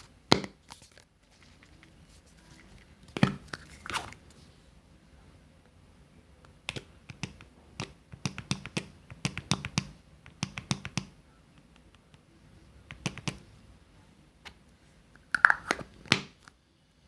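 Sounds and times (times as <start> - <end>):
sharp irregular taps: 6.7 - 11.1.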